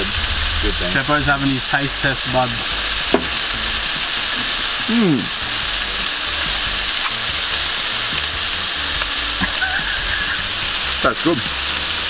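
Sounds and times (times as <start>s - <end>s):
food sizzling in a pan: 0.0s - 12.0s
person humming: 4.4s - 5.4s.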